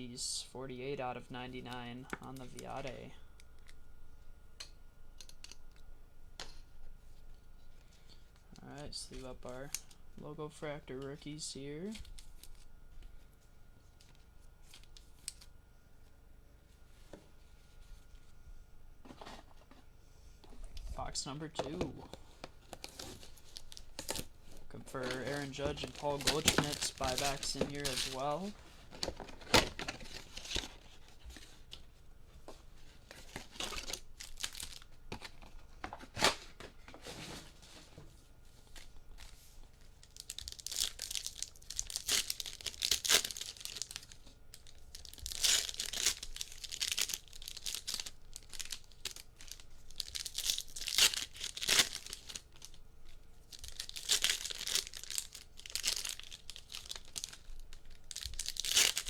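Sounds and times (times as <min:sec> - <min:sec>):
wrappers tearing and crinkling: 0:22.6 - 0:31.8, 0:33.0 - 0:36.6, 0:40.0 - 0:59.0.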